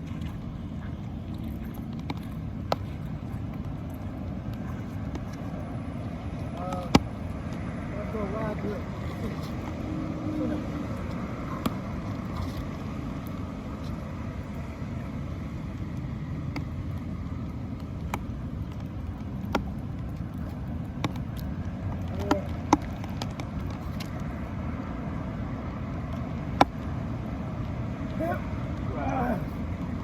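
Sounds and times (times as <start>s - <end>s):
low outdoor rumble: 0.0s - 30.0s
sharp ticks and knocks: 6.5s - 7.6s, 17.7s - 24.3s, 26.1s - 26.9s.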